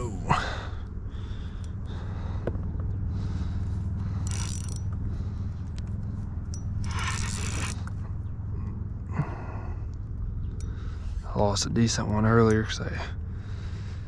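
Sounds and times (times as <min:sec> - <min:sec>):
fishing reel whirring: 0:04.2 - 0:05.0, 0:06.5 - 0:08.0.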